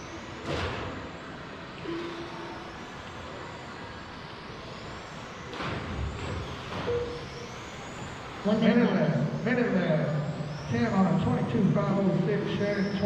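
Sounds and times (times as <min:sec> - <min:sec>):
rc cars motors whirring: 0:00.0 - 0:13.0
short steady tone: 0:01.8 - 0:02.8, 0:06.9 - 0:07.3.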